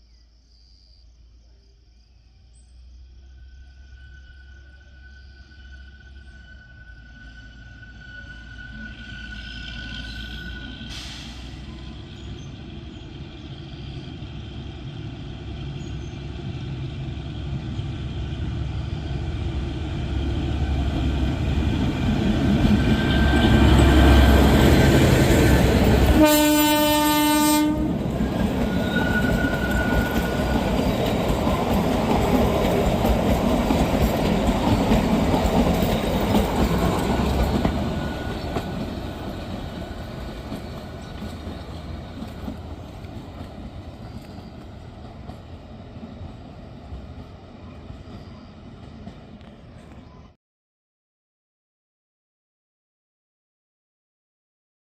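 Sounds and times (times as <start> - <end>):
train rumbling past: 2.1 - 50.4
train horn blast: 25.9 - 28.0.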